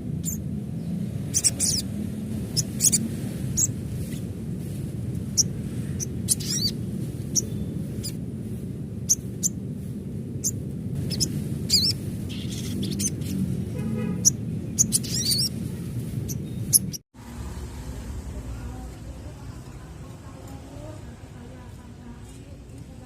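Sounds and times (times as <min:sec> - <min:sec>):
steady low hum: 0:00.0 - 0:23.0
short high bird chirps: 0:14.2 - 0:15.5.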